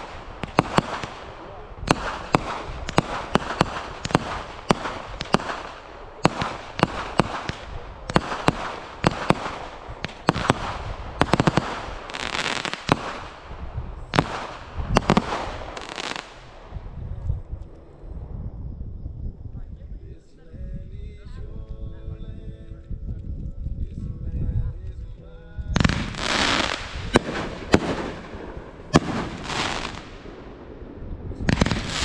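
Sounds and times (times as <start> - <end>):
fireworks bangs and crackling: 0.0 - 16.8, 25.8 - 32.0.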